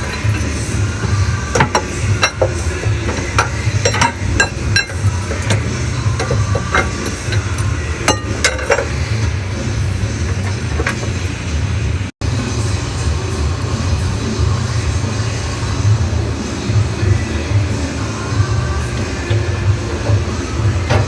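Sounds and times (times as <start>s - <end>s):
sharp metallic clinks and knocks: 0.0s - 9.2s
low engine rumble: 0.0s - 21.0s.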